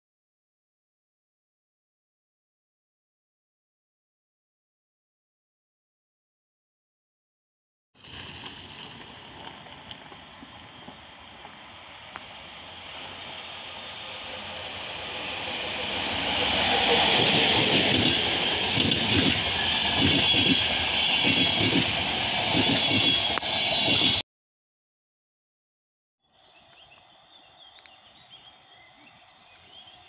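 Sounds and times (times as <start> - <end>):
train wheels rolling on rails: 8.0 - 24.2.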